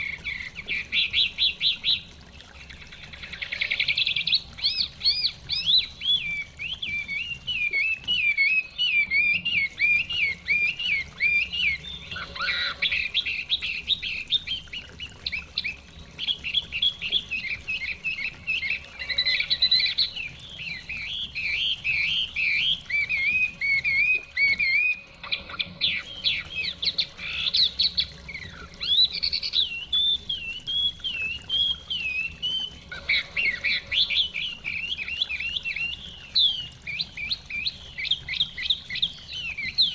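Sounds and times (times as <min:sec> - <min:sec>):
bird singing whistled song: 0:03.2 - 0:39.9.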